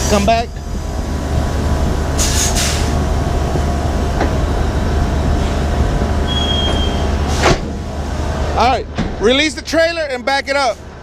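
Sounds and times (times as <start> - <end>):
diesel truck engine rumbling: 0.0 - 11.0
thin high whistle: 6.3 - 7.1.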